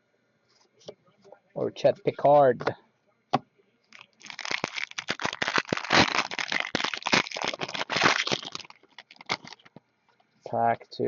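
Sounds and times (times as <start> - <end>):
foil wrapper crinkling: 3.9 - 9.8.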